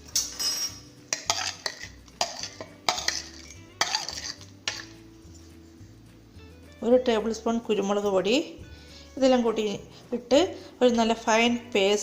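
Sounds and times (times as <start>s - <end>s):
spoon clinking against jar and bowls: 0.0s - 5.0s.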